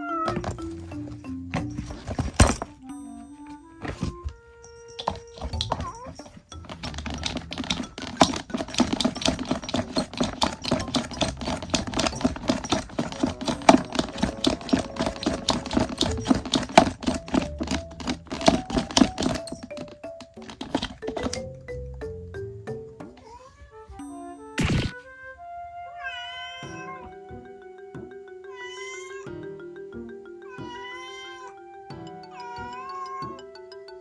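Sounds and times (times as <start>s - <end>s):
background music: 0.0s - 23.2s, 23.9s - 34.0s
sharp clicks or scratches: 6.6s - 19.6s, 24.6s - 25.0s.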